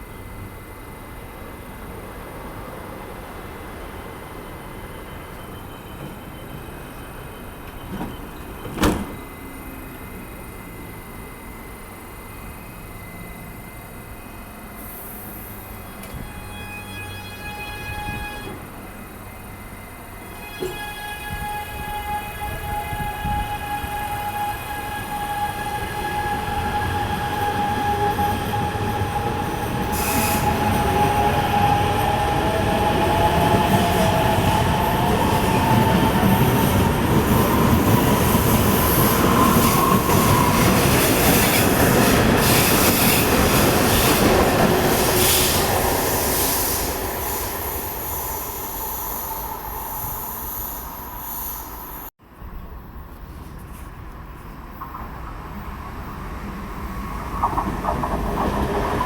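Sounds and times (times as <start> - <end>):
train wheels squealing: 4.0 - 9.6, 11.6 - 52.1
train rumble: 5.3 - 59.0.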